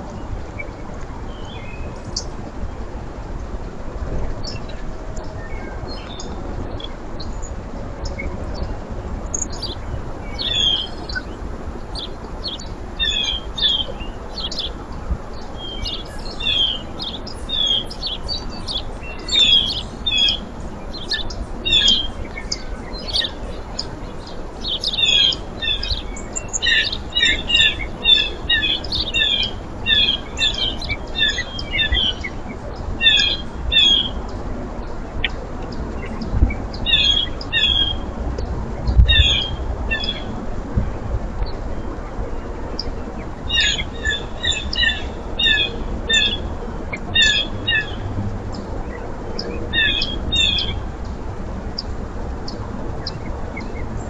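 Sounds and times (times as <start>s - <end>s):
low background rumble: 8.5s - 32.2s
small birds chirping: 8.8s - 32.3s.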